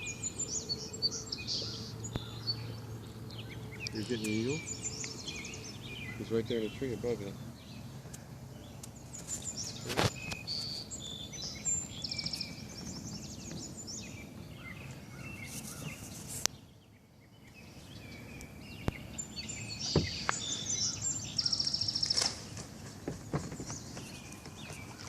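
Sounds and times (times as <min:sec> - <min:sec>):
birds chirping and trilling: 0:00.0 - 0:25.0
sharp knocks: 0:19.9 - 0:20.4.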